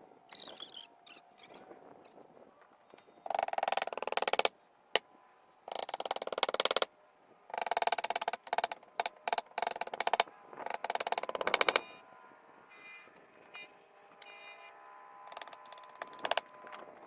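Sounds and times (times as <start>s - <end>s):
rapid clicking bursts: 3.2s - 4.5s, 5.7s - 6.9s, 7.5s - 11.9s, 15.3s - 16.5s.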